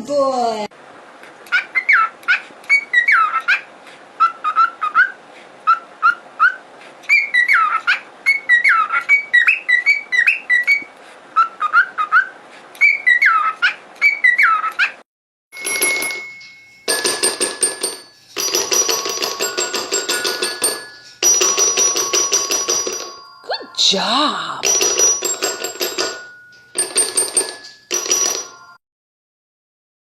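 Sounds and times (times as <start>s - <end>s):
pet bird whistling: 1.8s - 3.6s, 4.2s - 15.0s.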